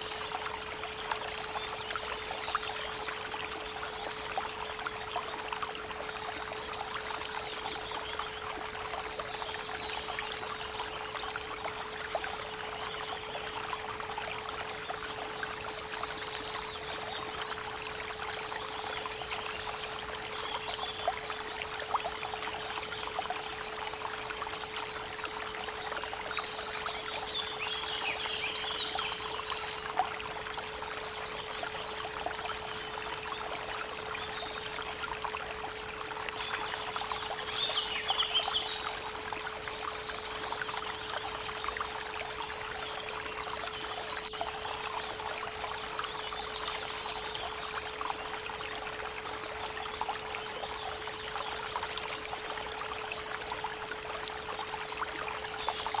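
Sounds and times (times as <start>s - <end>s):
songbirds trilling: 35.7s - 47.5s.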